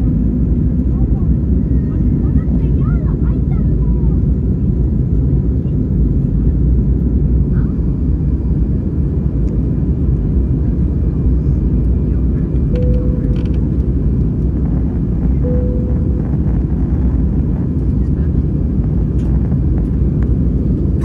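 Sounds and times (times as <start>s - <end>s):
airliner engine rumble: 0.0s - 21.0s
faint short tones: 12.8s - 13.8s, 15.4s - 16.5s.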